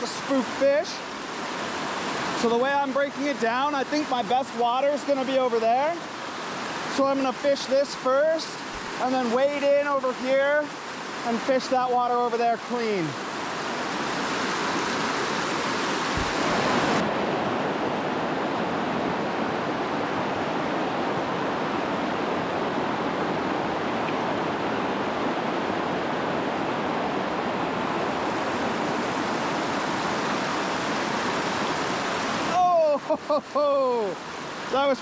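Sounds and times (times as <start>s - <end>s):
creek water rushing over ledge: 0.0s - 35.0s
low thump: 16.1s - 16.5s.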